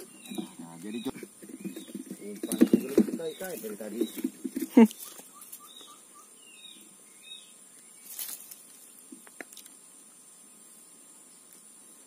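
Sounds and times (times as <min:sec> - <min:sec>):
faint bird chirps: 0:00.0 - 0:09.4.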